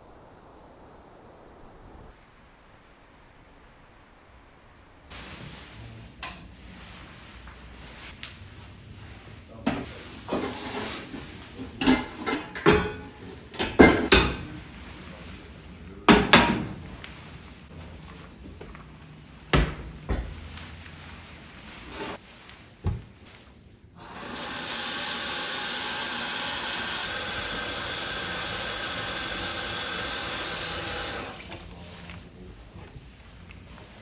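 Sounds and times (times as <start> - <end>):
cupboards and drawers opening and closing: 9.7 - 13.0
knocks of dishes set down: 11.8 - 14.4, 16.1 - 16.8.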